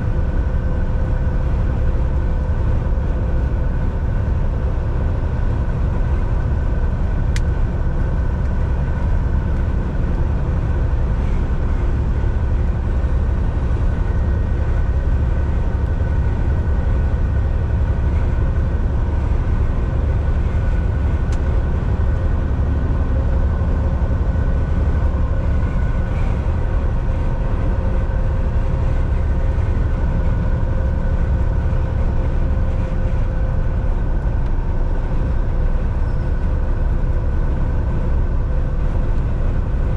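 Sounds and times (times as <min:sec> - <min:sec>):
faint steady whine: 0:00.0 - 0:39.9
road rumble: 0:00.0 - 0:39.9
truck engine drone: 0:00.0 - 0:39.9.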